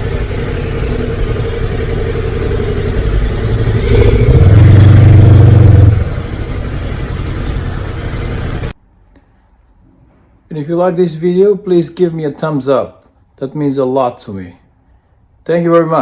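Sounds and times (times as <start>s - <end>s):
loud low drone: 0.0s - 8.7s
motorcycle engine: 0.0s - 8.8s
road noise: 0.0s - 8.9s.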